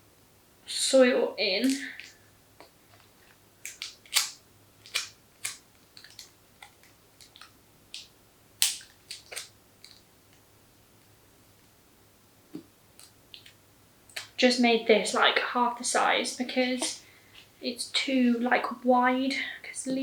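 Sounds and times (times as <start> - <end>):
handling crackles and snaps: 1.6 - 11.2, 12.5 - 14.4.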